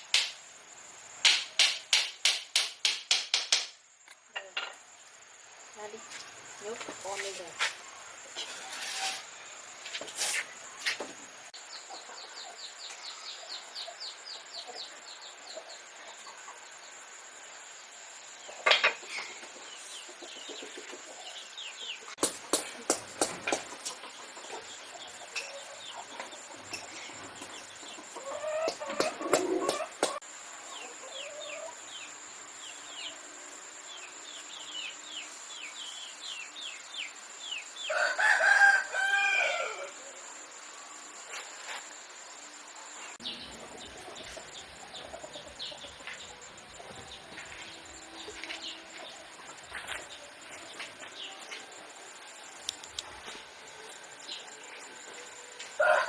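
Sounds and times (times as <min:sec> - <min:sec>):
rooster crowing: 0:37.8 - 0:40.2, 0:55.6 - 0:56.0.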